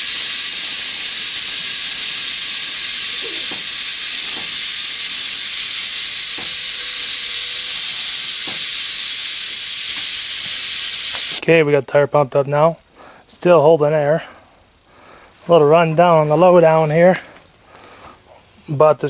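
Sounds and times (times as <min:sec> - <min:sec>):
compressed air hissing: 0:00.0 - 0:11.4.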